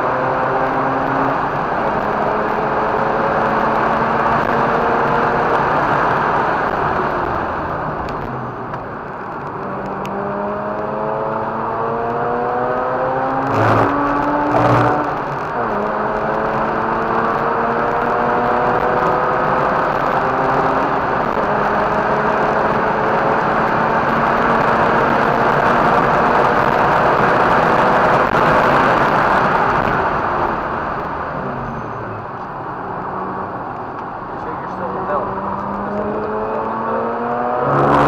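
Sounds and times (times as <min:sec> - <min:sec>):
rotary engine revving: 0:09.8 - 0:29.2, 0:34.4 - 0:38.0.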